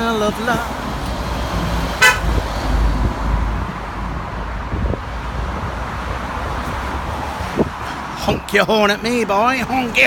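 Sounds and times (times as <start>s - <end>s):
road traffic rumbling: 0.0s - 10.0s
car horn toot: 2.0s - 2.4s.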